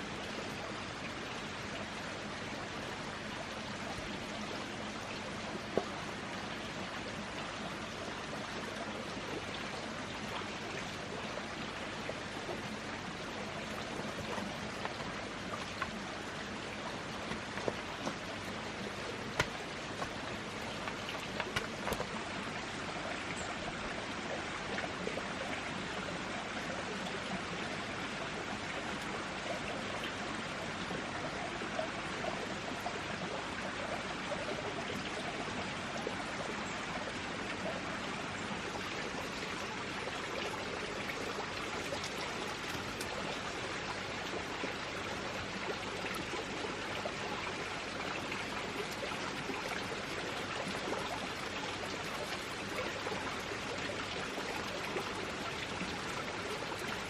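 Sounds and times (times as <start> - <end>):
rushing water: 0.0 - 57.0
small water drips: 0.0 - 57.0.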